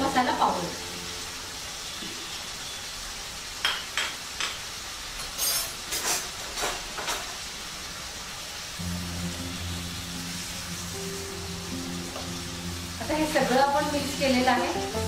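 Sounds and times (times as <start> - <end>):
beans sizzling in oil: 0.0 - 15.0
spoon and spatula clinking on pan: 5.2 - 6.3.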